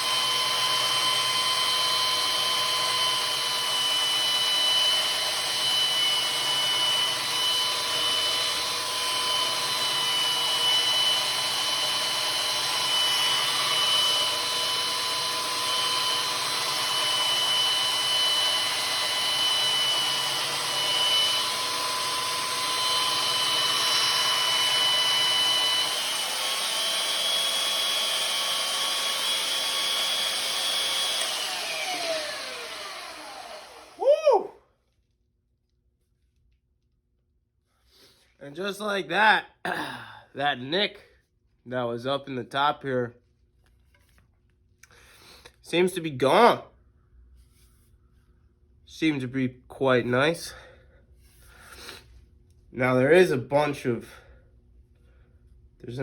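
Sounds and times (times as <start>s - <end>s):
power tool grinding metal: 0.0s - 34.1s.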